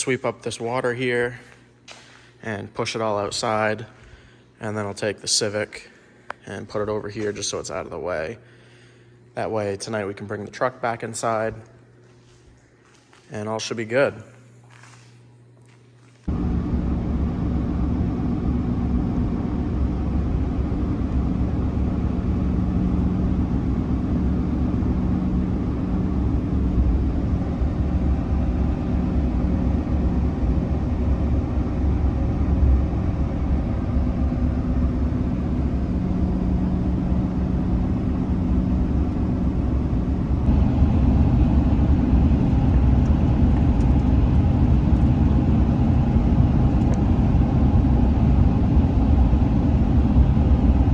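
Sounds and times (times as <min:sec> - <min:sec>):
vehicle engine rumbling: 0:16.3 - 0:50.9.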